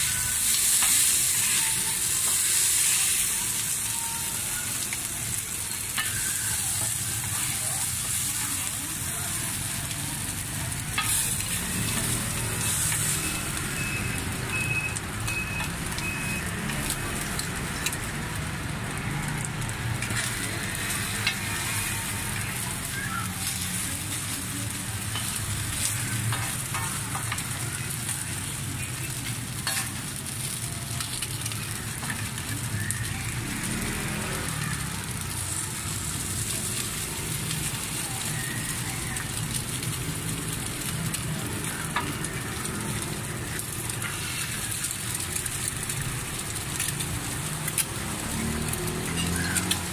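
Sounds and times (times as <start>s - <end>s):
food sizzling in hot oil: 0.0s - 49.9s
low hum of street traffic: 0.0s - 49.9s
metal spatula clicking and scraping: 9.8s - 13.6s, 19.4s - 28.2s, 28.9s - 32.9s, 40.6s - 49.9s.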